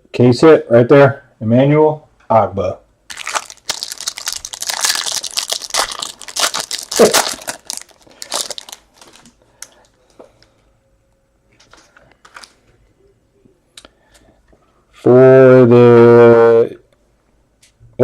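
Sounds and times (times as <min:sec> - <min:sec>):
card packaging crinkling: 0:03.1 - 0:09.8.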